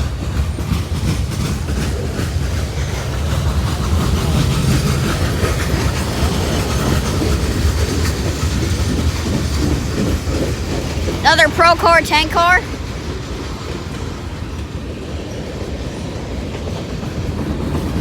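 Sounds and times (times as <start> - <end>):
steel wheels rumbling on rail: 0.0 - 11.2, 12.6 - 18.0.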